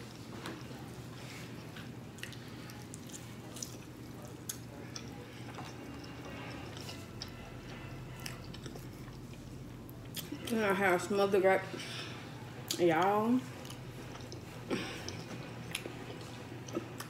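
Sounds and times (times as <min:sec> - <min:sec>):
faint low hum: 0:00.0 - 0:17.0
chewing with wet mouth clicks: 0:01.6 - 0:07.4, 0:08.2 - 0:10.4, 0:12.7 - 0:17.0.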